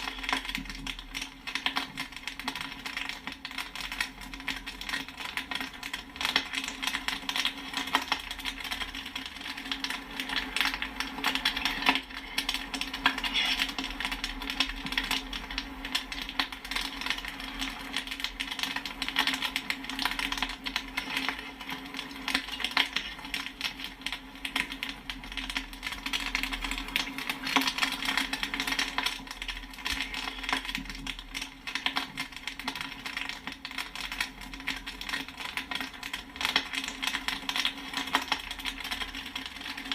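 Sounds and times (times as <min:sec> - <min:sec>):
popcorn popping in a pan: 0:00.0 - 0:39.9.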